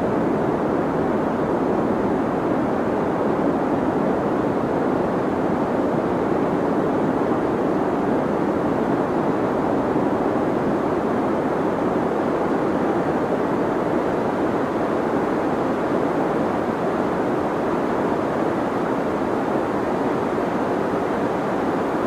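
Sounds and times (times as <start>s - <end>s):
deep white noise: 0.0s - 22.0s.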